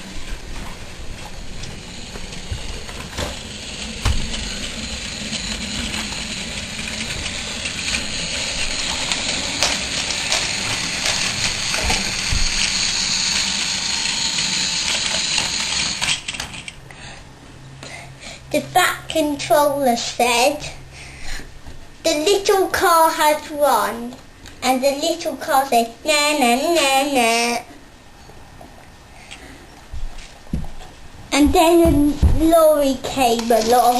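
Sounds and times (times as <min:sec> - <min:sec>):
toy train rattling whir: 0:01.2 - 0:16.8, 0:32.6 - 0:33.9.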